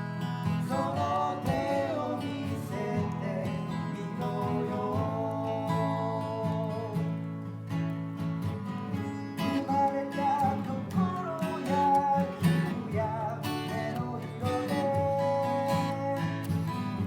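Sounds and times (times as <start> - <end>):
acoustic guitar strummed: 0.0 - 17.0
person singing: 0.6 - 7.0, 9.5 - 16.6.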